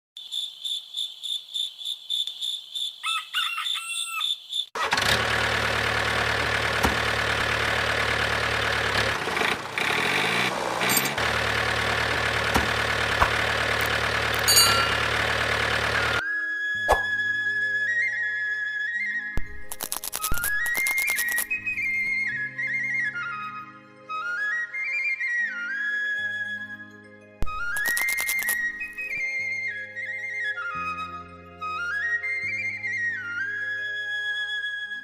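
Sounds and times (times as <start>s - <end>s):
crickets chirping: 0.2s - 3.3s
rooster crowing: 3.0s - 4.4s
loud engine running: 4.8s - 16.2s.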